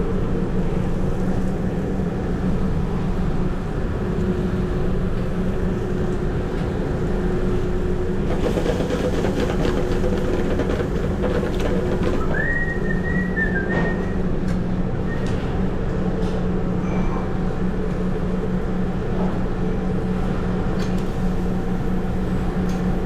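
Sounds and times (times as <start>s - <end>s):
broad rushing noise: 0.0s - 15.0s.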